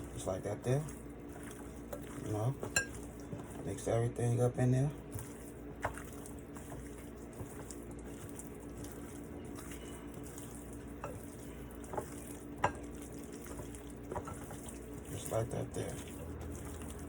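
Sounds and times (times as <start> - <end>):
chicken wings mixed in bowl: 0.0 - 17.0.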